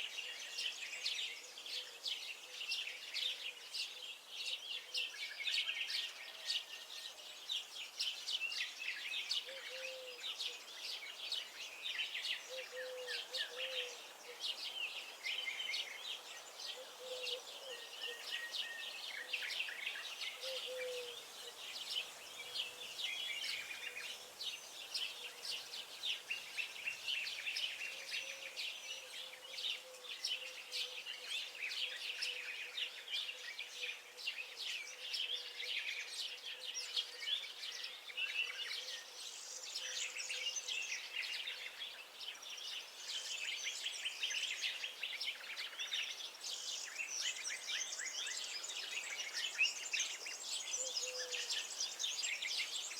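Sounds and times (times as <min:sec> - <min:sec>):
songbirds chirping and singing: 0:00.0 - 0:52.9.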